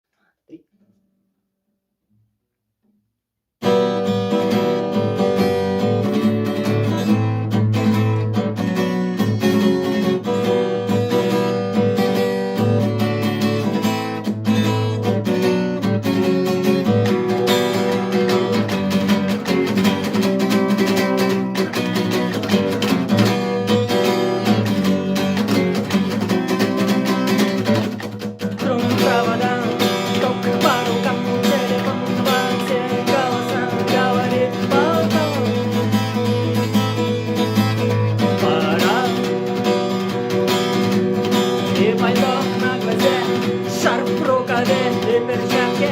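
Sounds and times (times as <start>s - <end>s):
acoustic guitar strumming chords: 3.6s - 45.9s
person singing: 26.8s - 36.2s, 37.9s - 40.3s, 41.3s - 45.9s.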